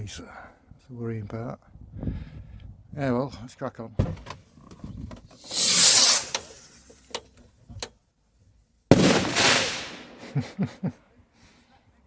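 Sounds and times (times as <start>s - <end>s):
fireworks bursts: 5.4s - 6.8s, 8.9s - 10.7s.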